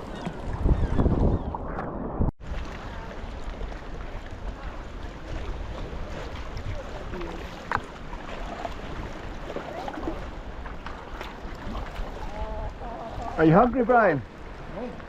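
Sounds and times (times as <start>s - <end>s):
wind on microphone: 0.0s - 7.7s
water washing around kayak: 2.2s - 15.0s.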